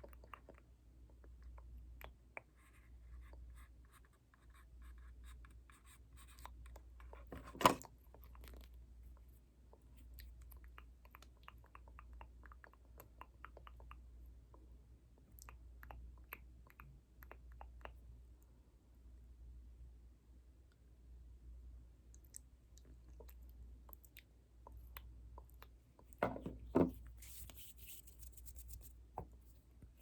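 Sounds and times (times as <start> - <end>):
soft crackling and scratching: 22.9 - 30.0.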